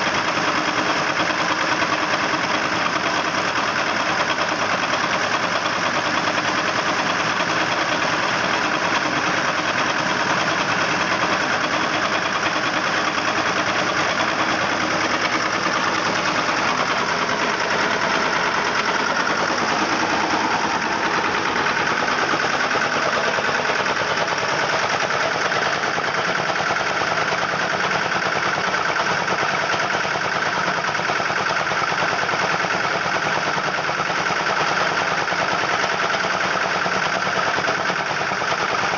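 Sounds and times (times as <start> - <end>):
diesel engine knocking steadily: 0.0 - 38.9.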